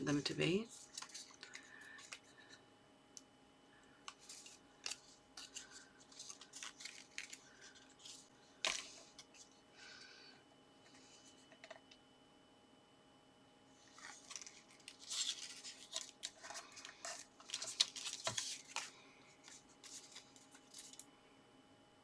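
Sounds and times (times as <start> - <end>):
paper and card rustling: 0.0 - 2.6, 4.1 - 9.6, 13.8 - 21.1.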